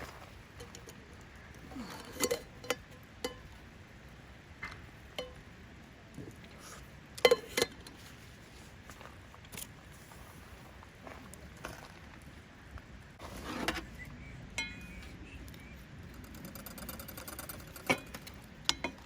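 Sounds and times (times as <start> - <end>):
dishes and utensils clinking: 1.8 - 3.5, 7.2 - 7.8, 14.5 - 15.1.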